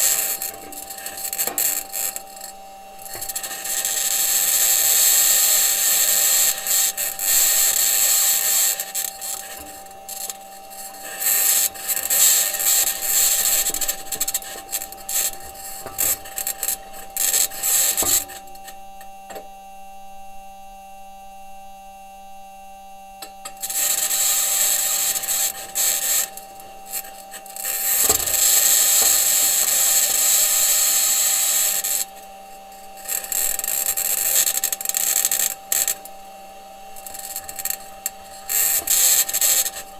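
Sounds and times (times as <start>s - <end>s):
metal wheels grinding over rock: 0.0s - 18.7s, 23.6s - 39.9s.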